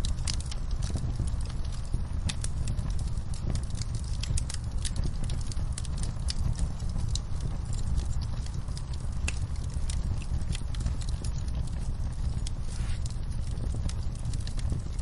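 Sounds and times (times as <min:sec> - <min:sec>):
burning wood crackling: 0:00.0 - 0:15.0
wood fire rumbling: 0:00.0 - 0:15.0.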